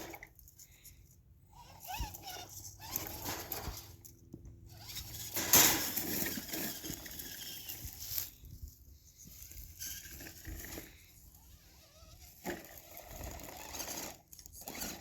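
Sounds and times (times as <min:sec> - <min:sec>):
tyres scraping over ground: 0:04.7 - 0:15.0.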